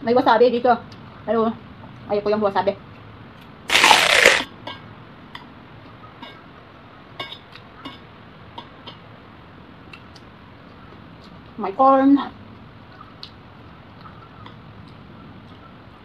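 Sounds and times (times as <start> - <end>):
short rush of noise: 3.7 - 4.5.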